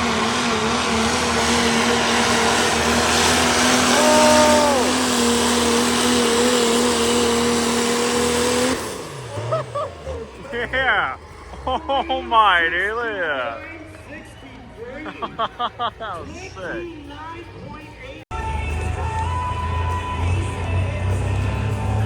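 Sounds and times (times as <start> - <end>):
vehicle engine at full throttle: 0.0 - 16.5, 18.3 - 22.0
person shouting: 3.9 - 5.1.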